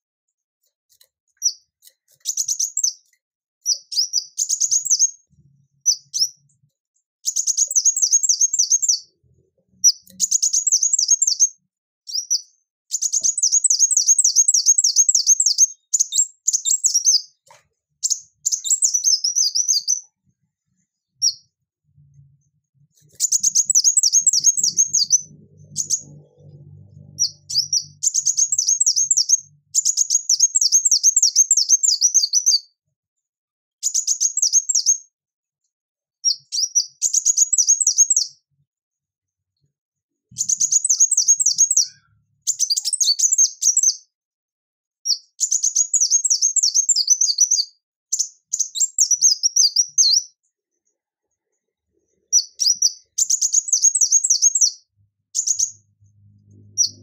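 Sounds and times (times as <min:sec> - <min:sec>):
sunbird singing: 0:02.2 - 0:03.0, 0:09.8 - 0:17.4, 0:23.1 - 0:32.6, 0:40.4 - 0:44.0, 0:52.3 - 0:57.0.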